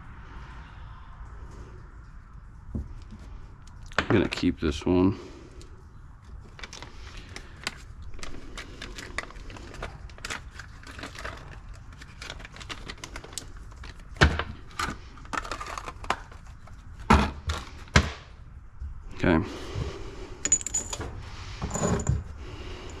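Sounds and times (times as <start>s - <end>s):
metal parts clattering on workbench: 20.4s - 22.3s.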